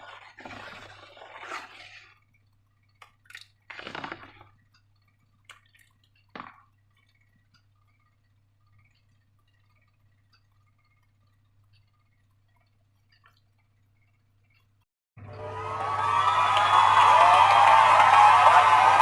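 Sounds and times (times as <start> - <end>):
low steady hum: 0.0 - 17.4
faint clicks: 4.4 - 14.8.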